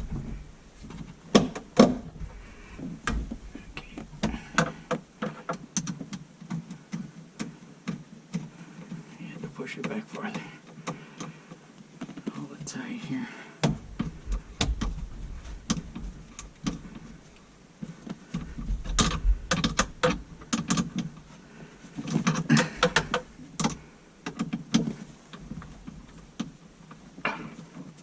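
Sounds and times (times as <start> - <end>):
hand tools clicking and knocking: 22.0 - 26.5.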